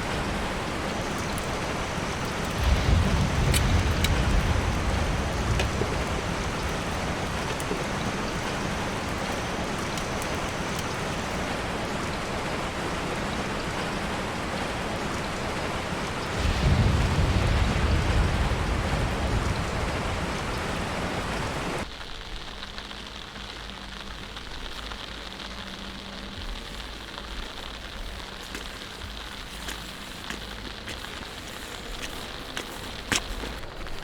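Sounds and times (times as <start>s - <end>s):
low rumble: 0.0s - 9.8s, 16.3s - 21.9s
water drip ticks: 0.0s - 12.4s, 16.2s - 34.0s
heavy rain falling: 0.0s - 34.0s
light rain: 0.0s - 34.0s.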